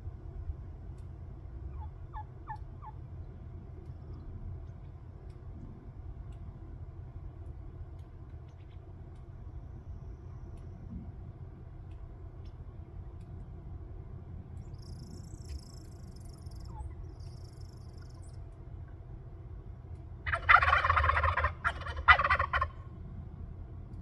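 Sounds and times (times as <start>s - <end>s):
turkey gobbling: 1.6s - 3.0s, 16.7s - 17.1s, 20.2s - 22.9s.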